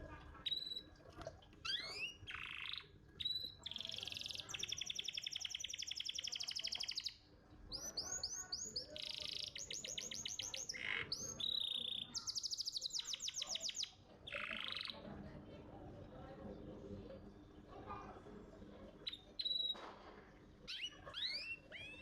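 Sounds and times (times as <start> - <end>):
canary singing trills: 0.4 - 1.0, 1.6 - 15.0, 19.0 - 19.8, 20.6 - 22.0.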